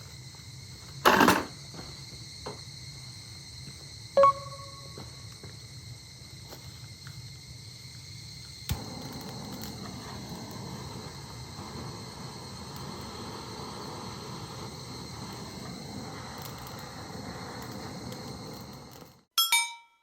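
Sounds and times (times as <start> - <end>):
high insect trill: 0.0 - 19.3.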